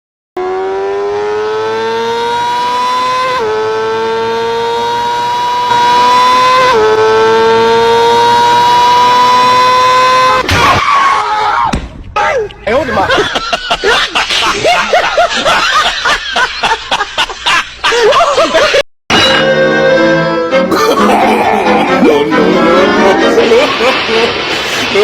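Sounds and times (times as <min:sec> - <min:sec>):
engine revving high: 0:00.4 - 0:10.4
loud noisy jumble: 0:20.7 - 0:25.0.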